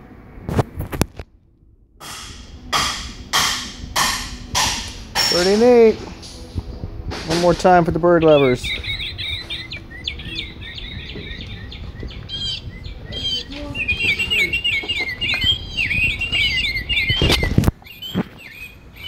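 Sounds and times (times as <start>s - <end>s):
loud rush of noise: 0.0s - 17.7s
bird chirping and twittering: 7.2s - 19.0s.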